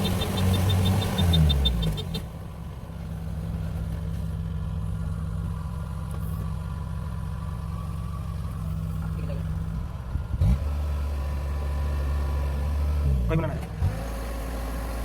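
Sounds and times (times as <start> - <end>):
diesel engine idling with ticking: 0.0 - 15.0.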